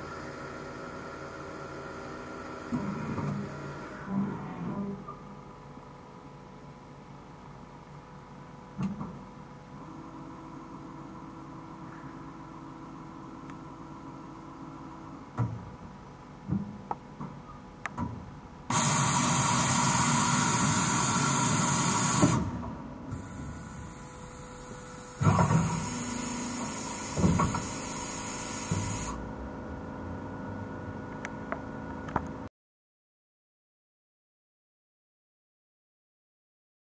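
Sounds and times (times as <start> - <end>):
loud bursts of hiss: 18.7 - 22.5, 23.2 - 29.2
machining centre humming: 18.7 - 32.5.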